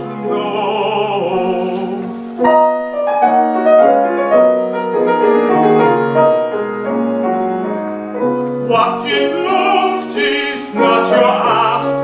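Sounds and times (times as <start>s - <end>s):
piano chords and melody: 0.0s - 12.0s.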